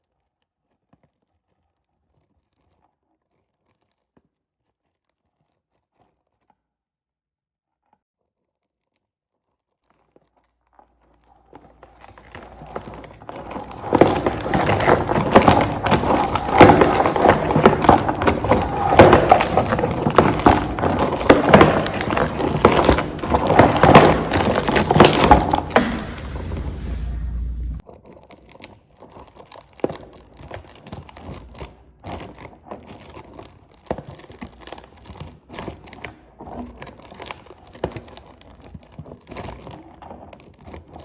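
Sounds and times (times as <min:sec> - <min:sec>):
crackling and crunching: 0:11.7 - 0:27.8
low rumble: 0:25.7 - 0:27.8.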